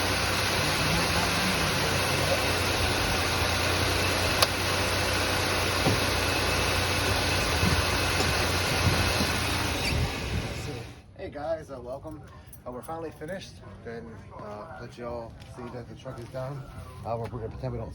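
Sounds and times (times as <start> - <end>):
pickup engine idling: 0.0 - 11.0.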